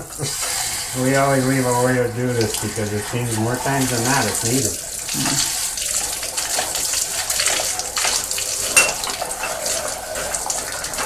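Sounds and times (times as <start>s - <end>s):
water spray hissing on metal: 0.0s - 11.0s
metal clinks: 8.8s - 9.7s.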